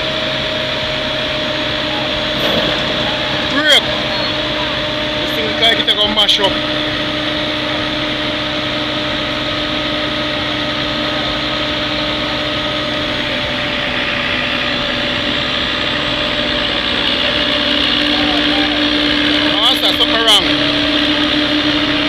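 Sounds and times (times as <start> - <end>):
paving machine engine humming: 0.0 - 22.0.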